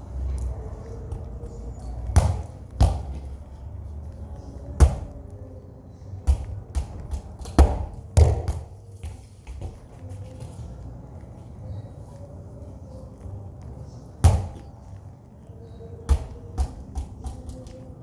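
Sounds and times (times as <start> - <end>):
ball thumping: 2.1 - 3.3, 6.3 - 9.9, 14.2 - 14.7.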